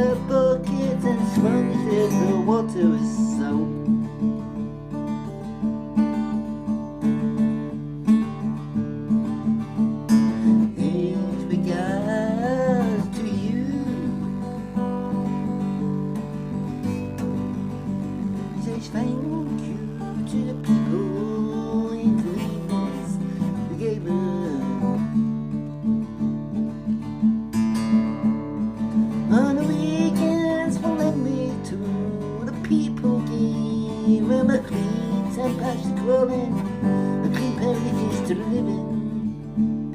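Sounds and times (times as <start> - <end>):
person singing: 0.0 - 4.2, 10.2 - 17.5, 18.2 - 25.2, 29.3 - 39.3
acoustic guitar strumming: 0.0 - 39.9.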